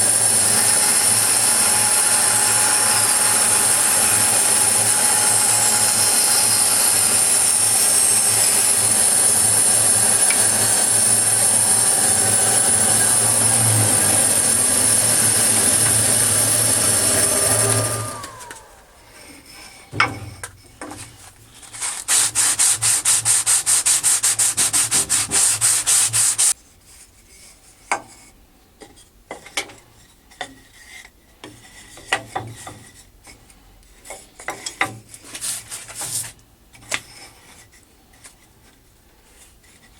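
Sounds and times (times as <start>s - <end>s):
saw motor winding down: 0.0s - 19.3s
rapid rasping strokes: 0.0s - 19.9s, 21.5s - 26.6s
scroll saw rasping through metal: 0.0s - 19.9s, 21.6s - 26.6s.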